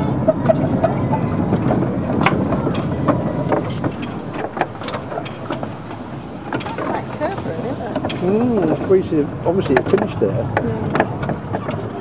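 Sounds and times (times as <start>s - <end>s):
train wheels rumbling: 1.3s - 12.0s
clicks and knocks from rail joints: 1.6s - 9.0s.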